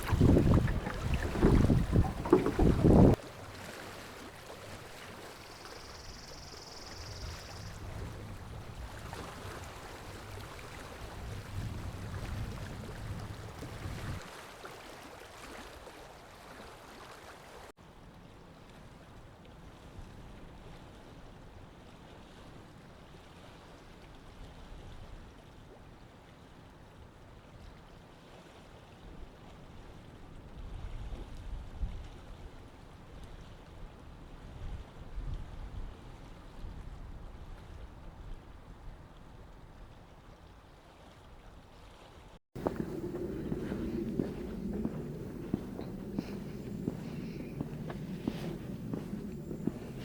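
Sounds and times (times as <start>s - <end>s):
wind rumble on microphone: 0.0s - 3.2s, 7.0s - 14.3s, 42.6s - 50.0s
dull outdoor hush: 0.0s - 3.6s, 42.6s - 50.0s.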